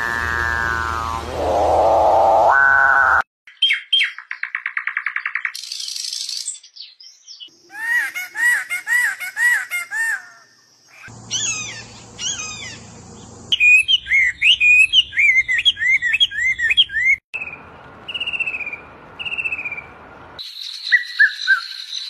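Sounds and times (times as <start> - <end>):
steady high whine: 0.0 - 3.2
birds singing whistled notes: 3.5 - 7.5, 10.9 - 22.0.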